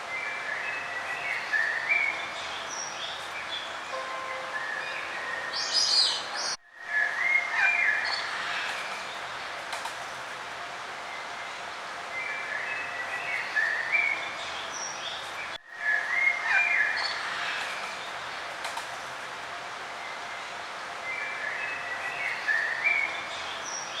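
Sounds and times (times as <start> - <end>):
songbirds singing: 0.0 - 9.3.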